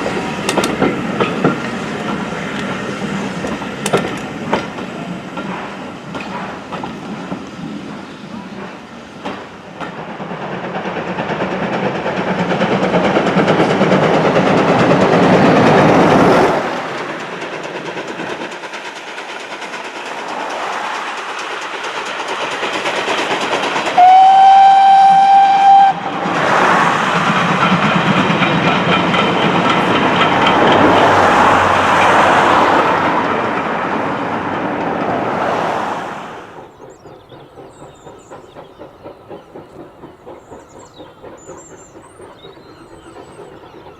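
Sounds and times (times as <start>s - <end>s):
steam trains rushing and clattering: 0.0s - 43.9s
steam whistle: 24.0s - 26.2s.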